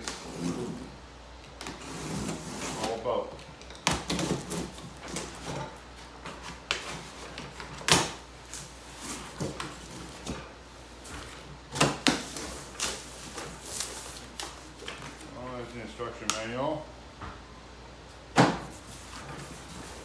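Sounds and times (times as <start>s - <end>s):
cardboard scraping and rustling: 0.0s - 15.8s, 18.4s - 20.0s.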